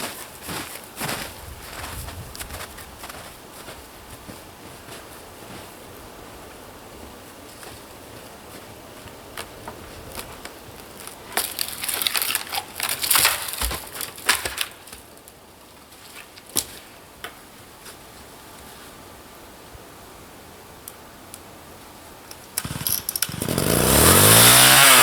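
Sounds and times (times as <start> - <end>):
crackling and rustling handling: 0.0 - 5.9, 7.2 - 18.9.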